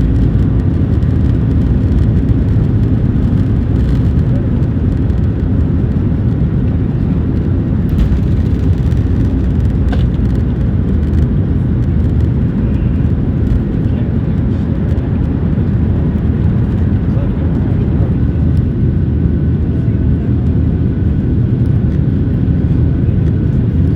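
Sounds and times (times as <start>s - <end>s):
jet engine rumble in cabin: 0.0s - 23.9s.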